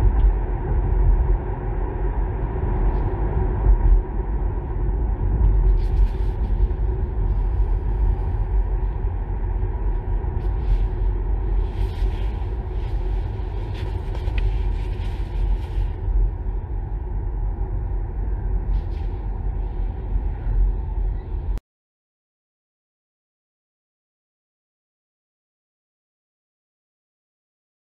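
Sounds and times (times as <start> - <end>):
road and tyre rumble: 0.0 - 21.6.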